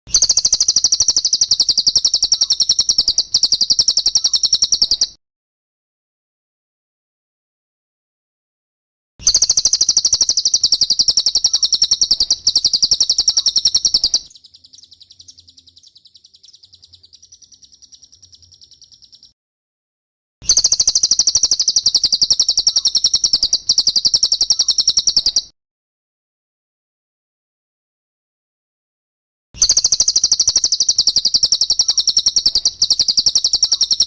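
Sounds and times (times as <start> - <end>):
bird trilling: 0.1 - 5.2, 9.2 - 19.3, 20.5 - 25.5, 29.6 - 34.0.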